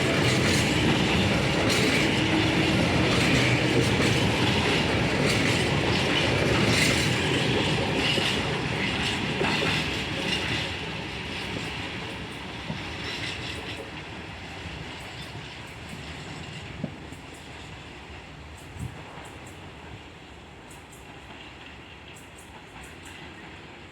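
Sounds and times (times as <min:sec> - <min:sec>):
freight train wagons rolling: 0:00.0 - 0:14.1.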